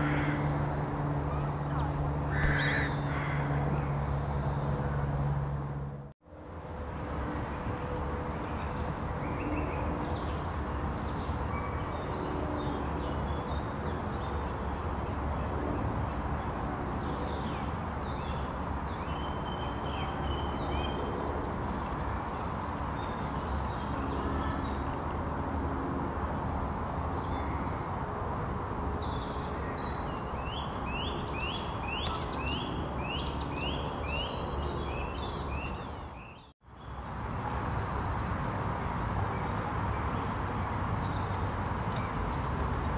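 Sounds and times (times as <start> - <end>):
small birds calling and singing: 0.0 - 4.8, 16.9 - 25.0, 28.6 - 42.9.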